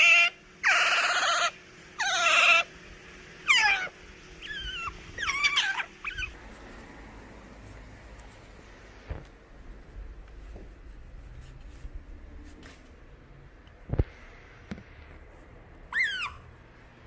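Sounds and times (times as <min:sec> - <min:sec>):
otter chirp: 0:00.0 - 0:02.7, 0:03.4 - 0:06.4.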